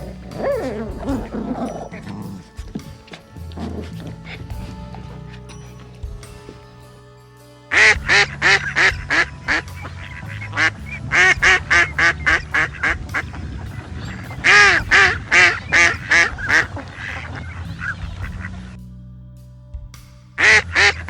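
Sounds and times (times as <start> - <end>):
waterfowl quacking: 7.7 - 18.8, 20.4 - 21.0.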